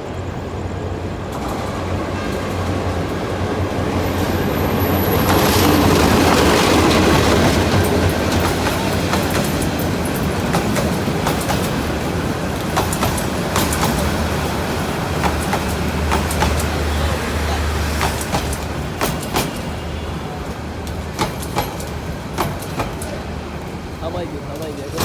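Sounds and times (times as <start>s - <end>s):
train rumbling on rails: 0.0s - 25.0s
wheels clicking over rail joints: 0.9s - 25.0s
high wheel squeal: 3.8s - 7.2s.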